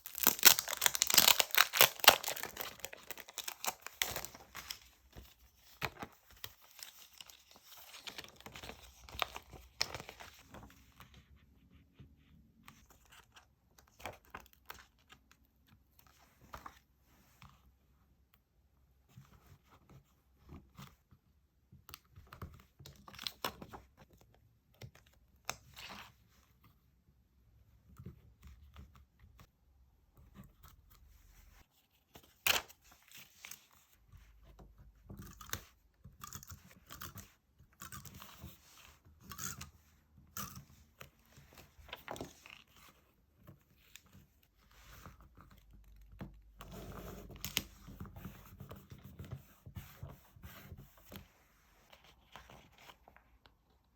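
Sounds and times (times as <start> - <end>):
stickers and paper rustling: 0.0 - 11.0.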